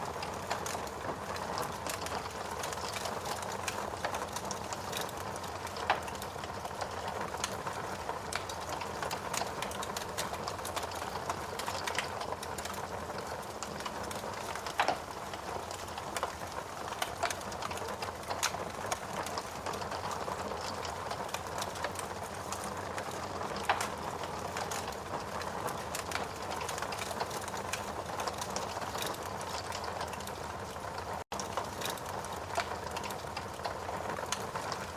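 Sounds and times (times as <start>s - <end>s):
wood fire crackling and popping: 0.0s - 34.9s.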